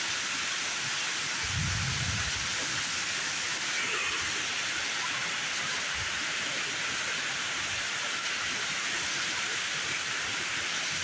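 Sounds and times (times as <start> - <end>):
heavy rain pouring: 1.1 - 6.6.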